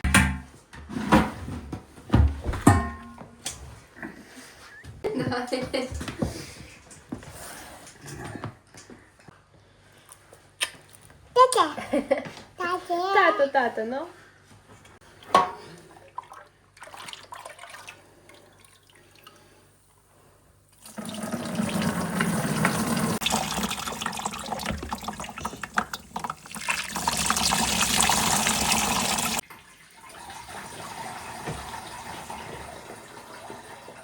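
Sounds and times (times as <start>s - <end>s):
quieter steady water running: 15.0s - 34.0s
tap water running into sink: 20.8s - 34.0s.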